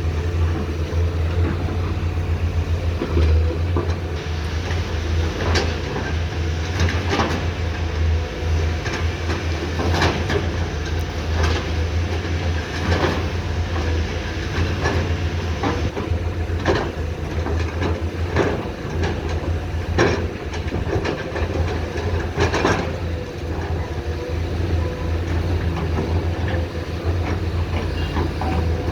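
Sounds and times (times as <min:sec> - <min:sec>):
excavator diesel engine running: 0:00.0 - 0:28.9.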